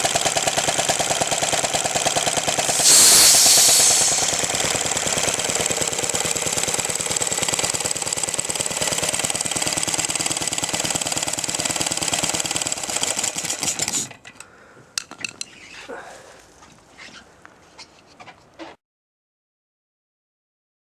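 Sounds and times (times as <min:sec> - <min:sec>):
single-cylinder engine running: 0:00.0 - 0:14.1.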